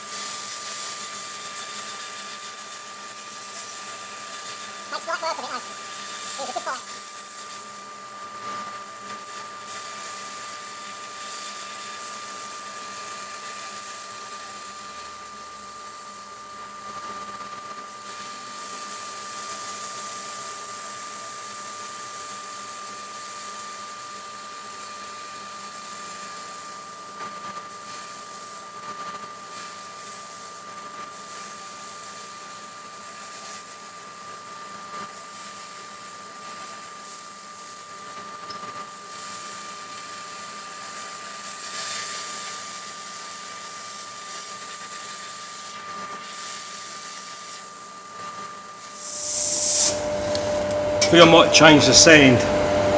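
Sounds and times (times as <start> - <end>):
constant high tone: 4.9 - 5.8, 6.4 - 7.0
compressed air sandblasting hiss: 48.9 - 50.6
dust extractor drawing air: 49.0 - 52.9.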